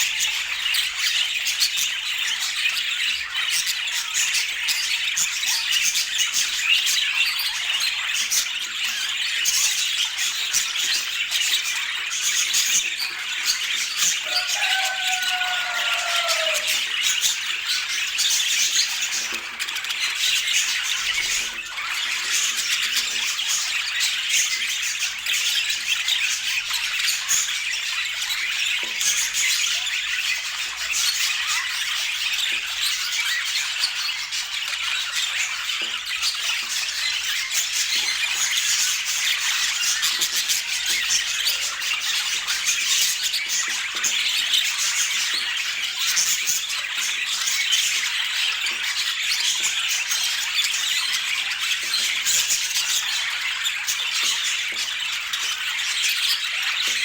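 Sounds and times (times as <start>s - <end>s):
budgerigars chattering: 0.0s - 32.7s.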